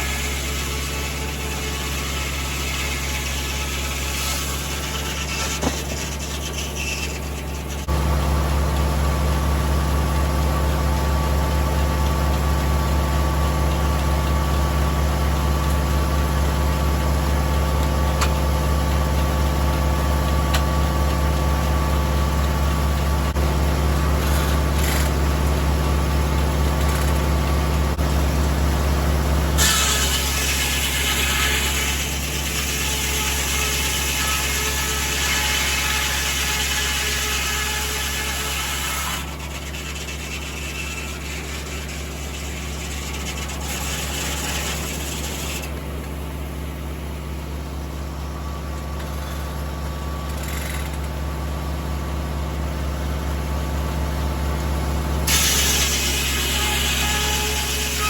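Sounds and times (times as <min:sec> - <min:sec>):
tractor engine running: 0:04.8 - 0:29.6, 0:39.3 - 0:55.3.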